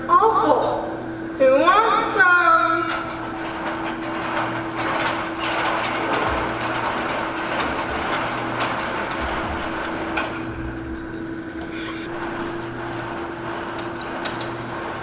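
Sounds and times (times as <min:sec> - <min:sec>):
electrical hum: 0:00.0 - 0:15.0
knocks and light clatter: 0:02.9 - 0:11.4.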